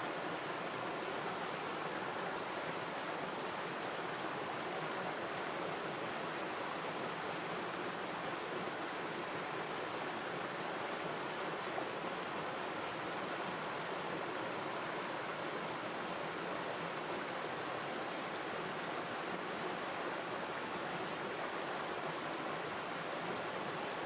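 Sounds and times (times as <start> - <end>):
river water flowing over stones: 0.0 - 24.0.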